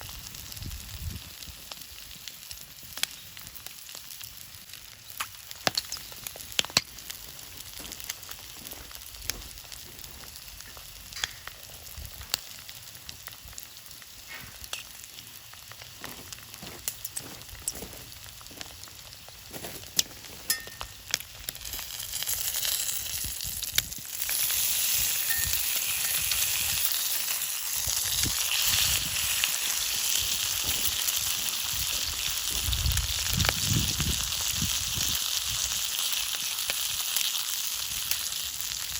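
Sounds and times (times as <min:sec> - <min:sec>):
bacon and eggs sizzling in pan: 0:00.0 - 0:38.9.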